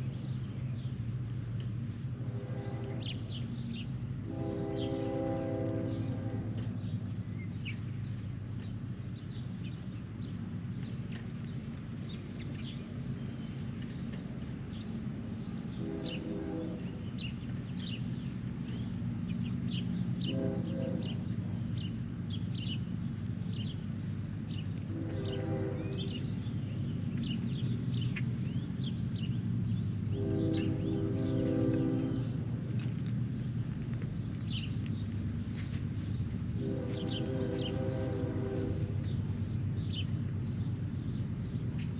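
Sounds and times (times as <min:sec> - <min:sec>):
steady low rumble: 0:00.0 - 0:41.9
wild birds chirping: 0:00.0 - 0:41.9.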